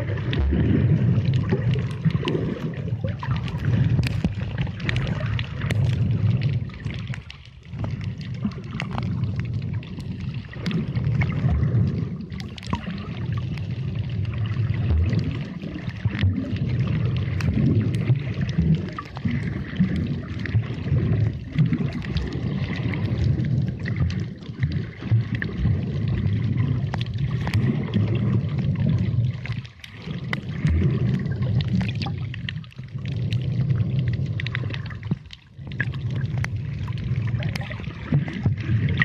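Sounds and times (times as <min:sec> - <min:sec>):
underwater water sloshing: 0:00.0 - 0:39.0.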